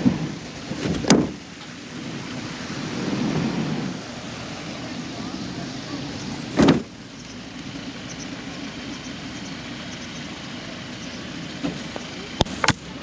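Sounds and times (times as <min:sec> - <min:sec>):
loud thump: 0:00.0 - 0:01.4, 0:06.5 - 0:06.9
vehicle engine rumbling: 0:00.0 - 0:13.0.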